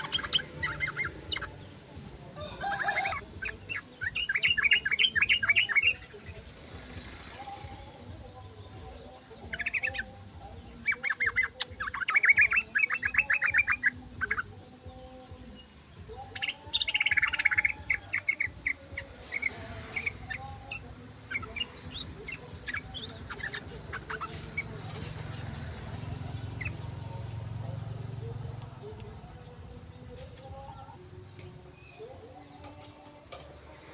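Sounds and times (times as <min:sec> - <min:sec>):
bulbuls chattering calls: 0:00.0 - 0:33.6.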